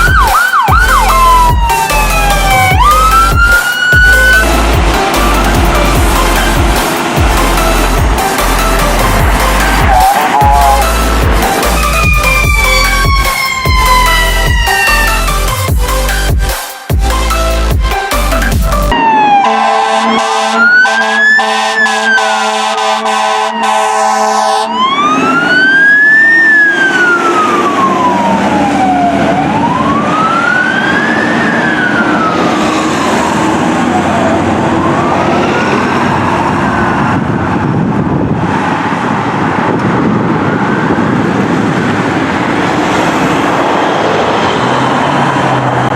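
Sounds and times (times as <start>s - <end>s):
blaring horn: 0.0s - 15.6s, 18.9s - 25.3s
fire engine siren wailing: 0.0s - 16.3s, 17.1s - 45.9s
truck engine and road noise: 0.0s - 45.9s.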